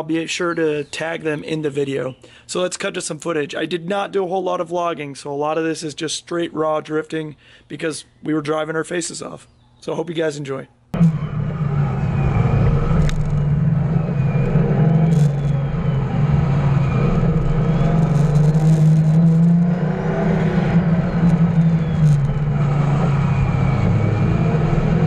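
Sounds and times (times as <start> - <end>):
car engine at high revs: 11.0 - 25.0.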